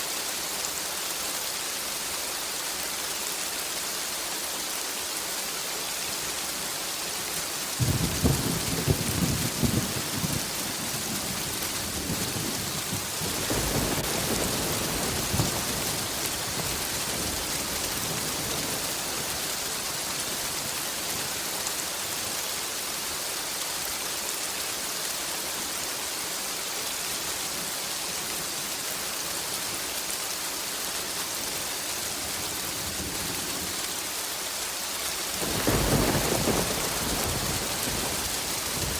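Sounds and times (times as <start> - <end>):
steady rain hissing: 0.0 - 38.9
thunder rumbling: 7.8 - 19.6, 35.4 - 38.9.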